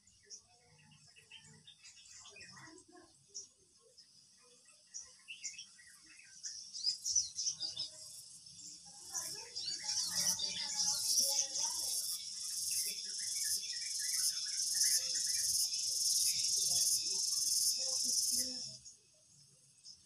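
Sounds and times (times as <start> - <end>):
small insect chirps: 7.8 - 18.9
insects chirping in pulsing chorus: 7.8 - 19.0.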